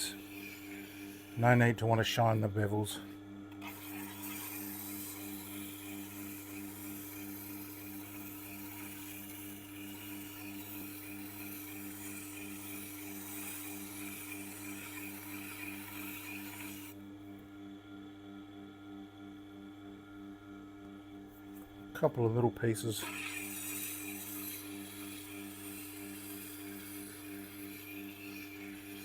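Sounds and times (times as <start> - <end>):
knife rubbing on honing wheel: 0.0 - 2.5, 3.6 - 17.0, 22.8 - 29.0
sharpener motor humming: 0.0 - 17.1, 21.3 - 29.0.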